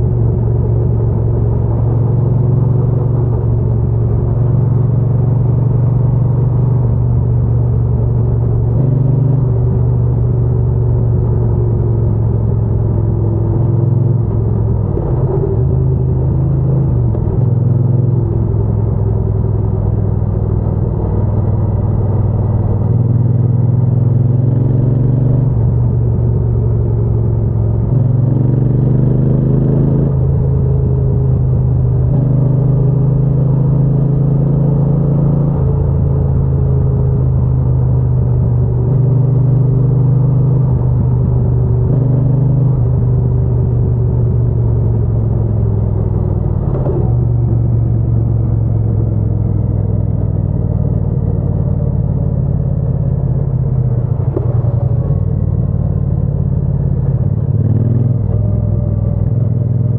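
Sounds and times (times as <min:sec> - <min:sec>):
motorcycle engine and exhaust: 0:00.0 - 0:59.9.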